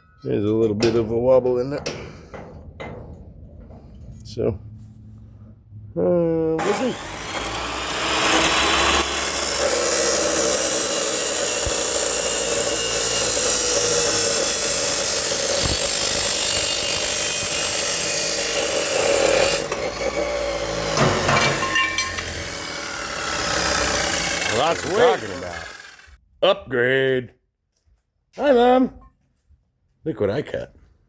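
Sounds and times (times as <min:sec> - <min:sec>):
metal clanks: 0:00.0 - 0:04.8, 0:19.2 - 0:22.9
power saw cutting: 0:06.6 - 0:26.2.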